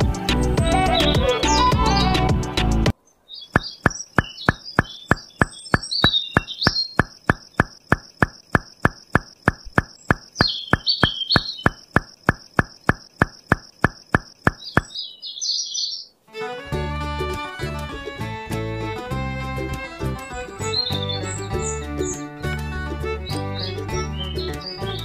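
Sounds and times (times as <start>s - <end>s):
background music: 0.0s - 2.9s, 16.3s - 25.0s
bird chirps: 2.9s - 16.2s, 20.6s - 22.5s, 23.2s - 25.0s
rapid even ticking: 3.5s - 15.0s.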